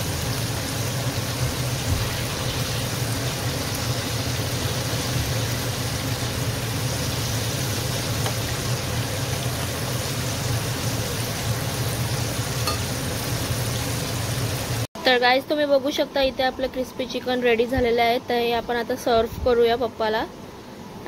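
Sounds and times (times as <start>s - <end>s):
chicken deep-frying in oil: 0.0s - 14.9s.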